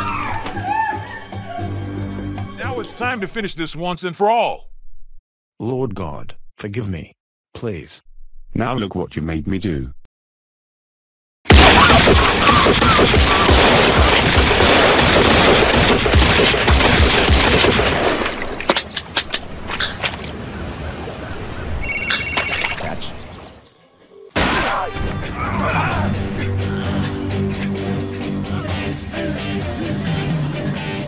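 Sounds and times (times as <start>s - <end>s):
gunfire burst: 11.5s - 18.5s
short beeps: 21.8s - 22.9s.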